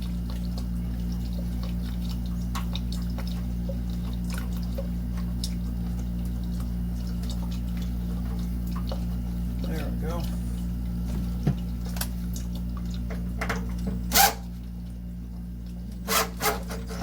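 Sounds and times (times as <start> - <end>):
water dripping and trickling: 0.0 - 16.0
low electrical hum: 0.0 - 17.0.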